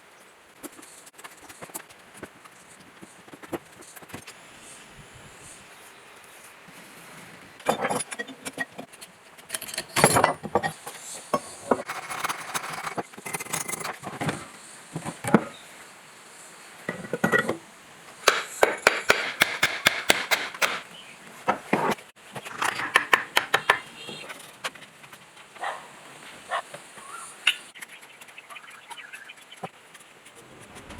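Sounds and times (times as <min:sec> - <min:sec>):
hand tools clinking on metal: 0:07.6 - 0:14.4.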